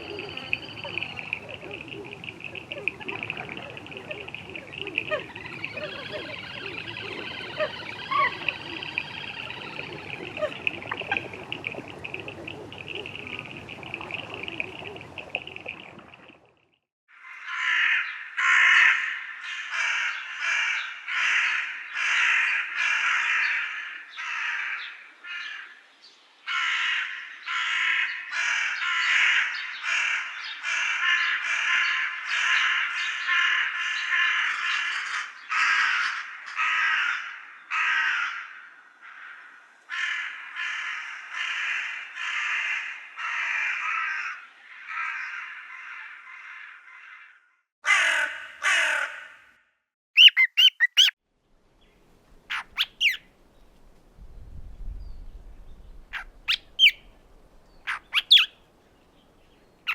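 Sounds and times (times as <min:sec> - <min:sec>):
birds calling: 0:00.0 - 0:16.5, 0:50.2 - 0:51.2, 0:52.4 - 0:53.8, 0:55.2 - 0:59.9.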